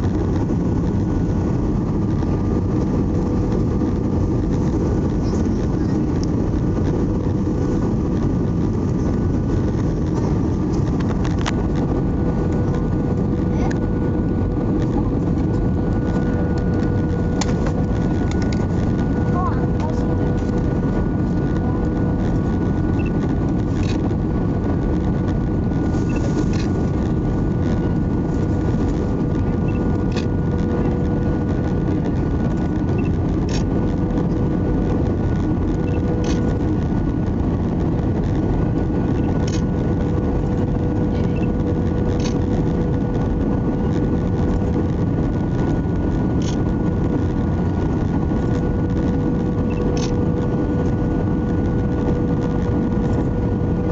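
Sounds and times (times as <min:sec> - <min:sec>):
airplane cabin rumble: 0:00.0 - 0:53.9
engine whine: 0:00.0 - 0:53.9.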